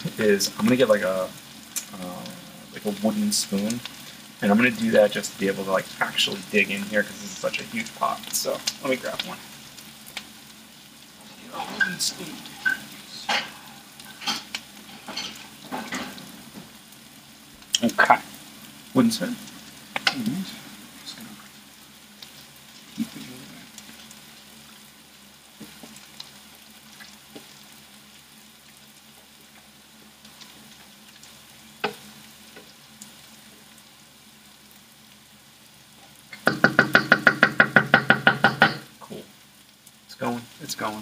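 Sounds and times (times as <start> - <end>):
onions sizzling in a pan: 0.0 - 41.0.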